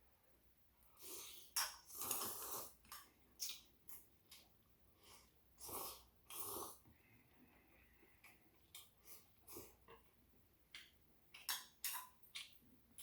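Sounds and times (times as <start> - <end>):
person slurping noodles: 1.0 - 2.8, 5.0 - 6.9.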